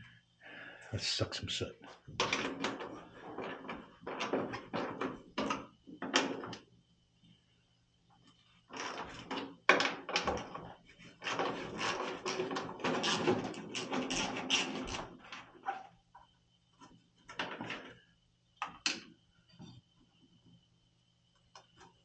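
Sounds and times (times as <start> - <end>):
scraping and knocking on sheet metal: 8.8 - 15.0.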